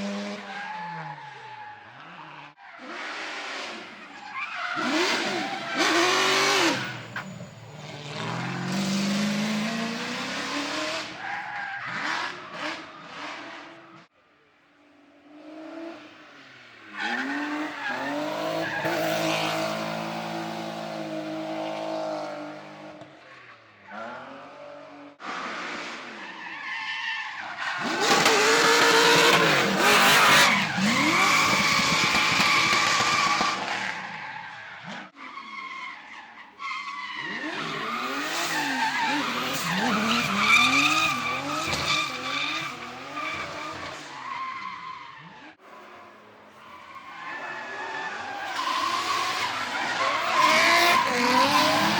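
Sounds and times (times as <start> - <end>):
car engines revving: 0.0 - 14.1, 14.9 - 26.5, 27.3 - 35.7, 37.0 - 51.9.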